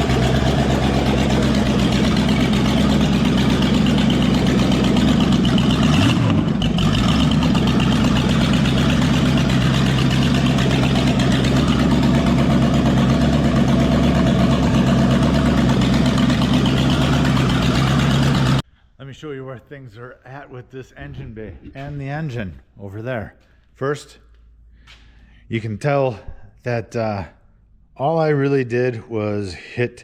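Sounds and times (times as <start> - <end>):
car engine idling: 0.0 - 18.6.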